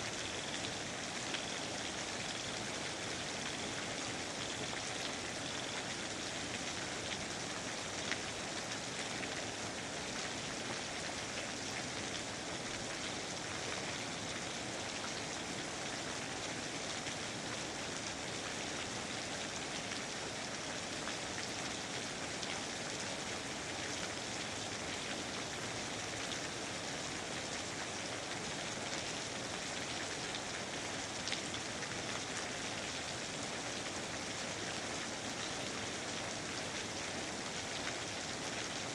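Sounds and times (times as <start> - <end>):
steady rain falling: 0.0 - 38.9
faint raindrop ticks: 6.6 - 9.3.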